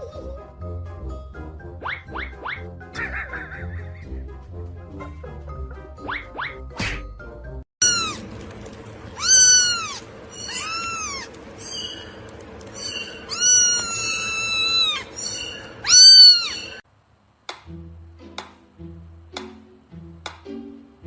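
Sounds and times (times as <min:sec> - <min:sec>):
cat meowing: 0:07.8 - 0:08.2, 0:09.2 - 0:11.4, 0:13.2 - 0:16.8.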